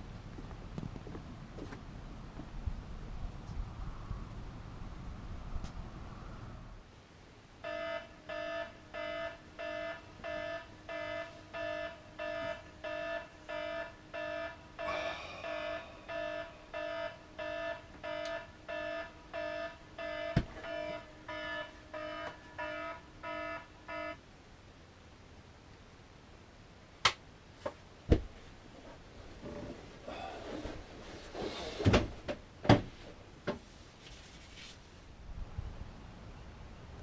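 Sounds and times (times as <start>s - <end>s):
electronic alarm beeping: 7.6s - 24.2s.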